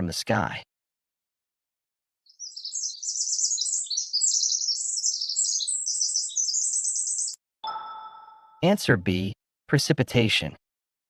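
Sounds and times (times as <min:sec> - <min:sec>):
small birds chirping: 0:02.2 - 0:07.4.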